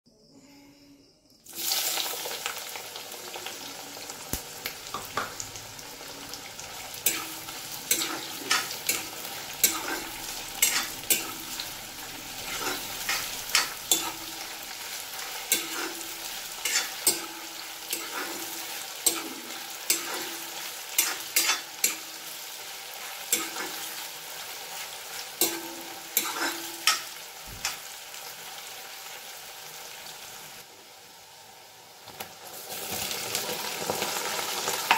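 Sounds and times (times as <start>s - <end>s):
onions sizzling in hot oil: 1.4s - 34.9s
ladle clinking and scraping pan: 7.0s - 14.5s, 15.4s - 22.1s, 23.2s - 24.0s, 25.4s - 27.8s.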